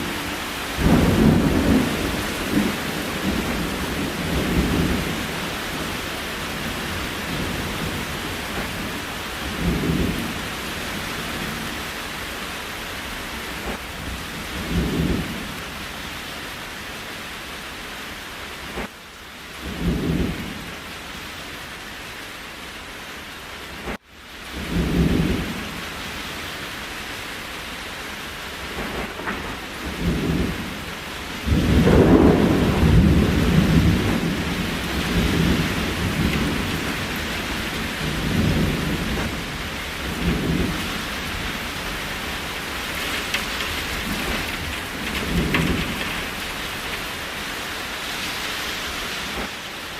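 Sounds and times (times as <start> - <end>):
thunder rumbling: 0.0 - 12.2, 13.4 - 15.9, 23.8 - 26.0, 28.5 - 48.4
steady rain: 0.0 - 49.9.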